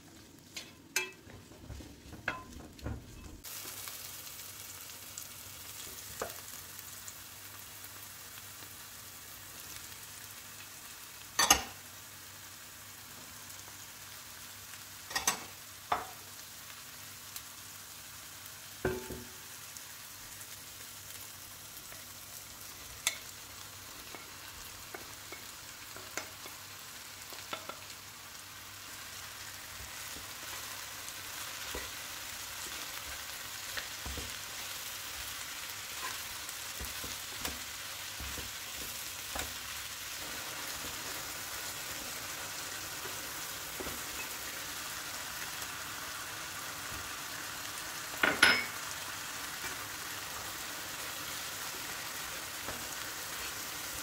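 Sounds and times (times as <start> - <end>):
vegetables sizzling in oil: 0.0 - 54.0
wooden spatula knocking on pan: 18.9 - 19.4.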